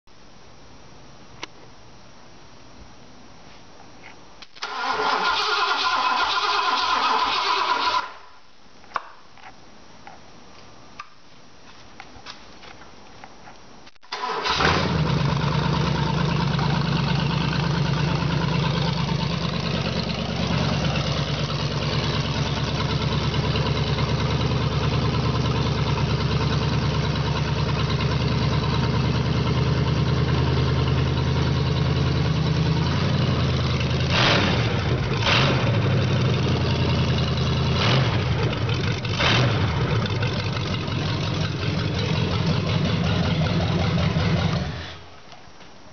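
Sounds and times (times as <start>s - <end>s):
engine starting and idling: 4.6s - 8.2s, 14.1s - 45.1s
engine revving bursts: 14.1s - 18.5s, 34.0s - 36.1s, 37.6s - 45.0s.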